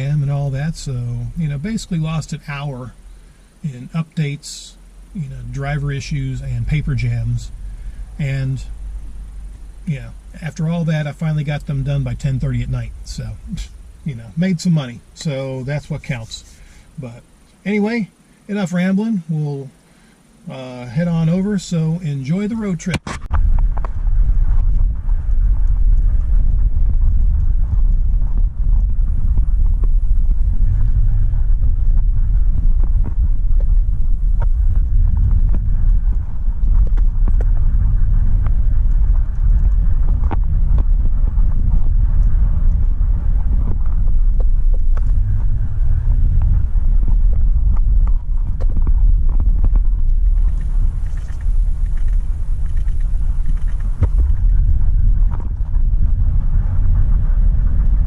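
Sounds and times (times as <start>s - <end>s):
road and engine rumble in cabin: 0.0s - 58.0s
small clicks and rattles: 47.7s - 54.6s.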